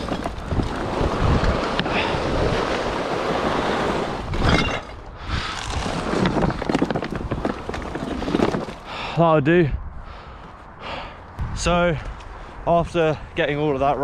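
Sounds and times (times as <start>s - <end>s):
object dragged across ground: 0.0s - 8.8s.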